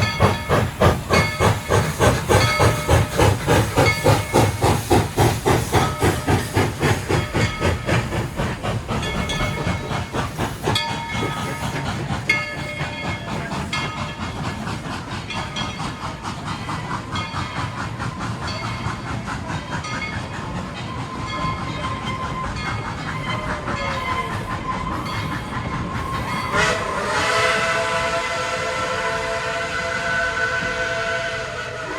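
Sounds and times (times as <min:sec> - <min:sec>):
steam locomotive chuffing: 0:00.0 - 0:31.9
train rolling clatter: 0:00.0 - 0:31.9
train whistle chord: 0:26.5 - 0:31.9.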